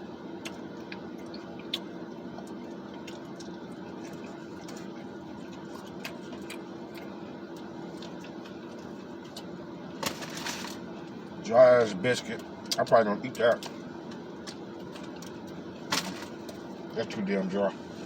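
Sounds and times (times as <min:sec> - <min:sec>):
steady low hum: 0:00.0 - 0:18.0
person eating clicks and smacks: 0:00.4 - 0:09.5, 0:13.5 - 0:15.6.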